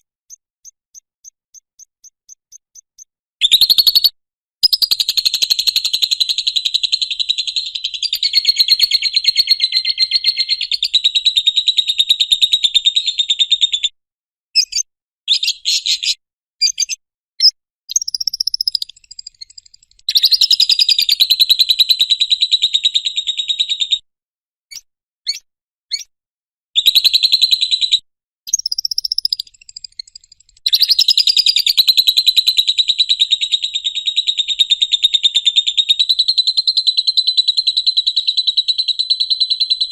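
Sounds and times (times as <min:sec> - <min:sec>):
lovebird chirps: 0:00.0 - 0:06.7, 0:07.6 - 0:10.8, 0:14.6 - 0:21.2, 0:28.5 - 0:31.7
lovebird chattering trill: 0:17.9 - 0:21.3, 0:28.5 - 0:31.8.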